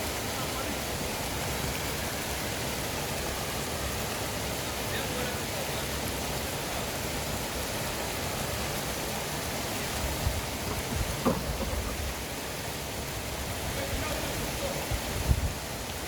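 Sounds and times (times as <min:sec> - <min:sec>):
river water rushing: 0:00.0 - 0:16.0
low thumps: 0:10.2 - 0:12.2.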